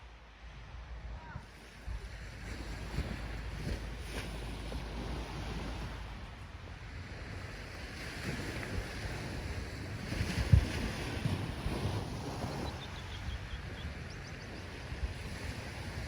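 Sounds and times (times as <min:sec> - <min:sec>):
ocean waves washing in: 0:00.0 - 0:16.0
wind buffeting microphone: 0:00.0 - 0:16.0.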